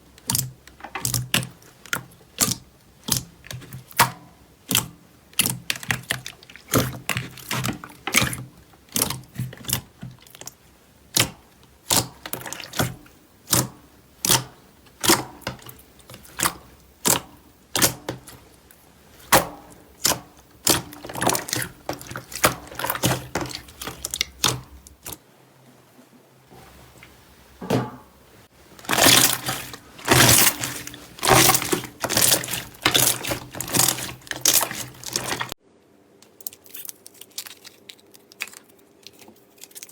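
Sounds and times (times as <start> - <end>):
slime crackling and squishing: 4.7 - 13.6, 14.2 - 25.2, 28.6 - 35.6, 36.2 - 39.9.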